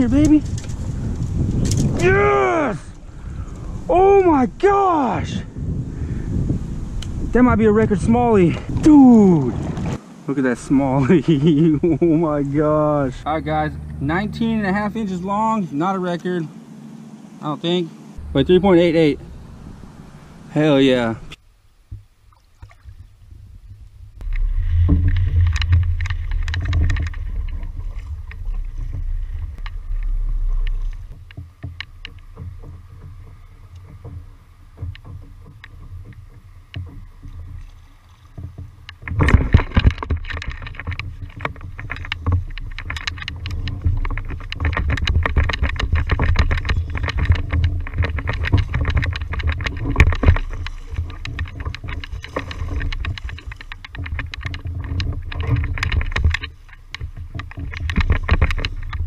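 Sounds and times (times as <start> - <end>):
wind rumble on microphone: 0.0 - 10.0, 22.7 - 59.0
water splashing: 8.0 - 59.0.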